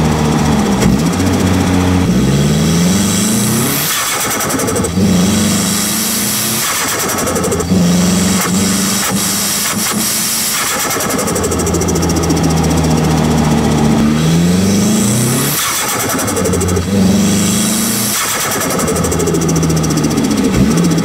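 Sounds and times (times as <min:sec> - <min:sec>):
turbo flutter: 0:00.0 - 0:21.0
turbocharged car engine accelerating: 0:00.0 - 0:21.0.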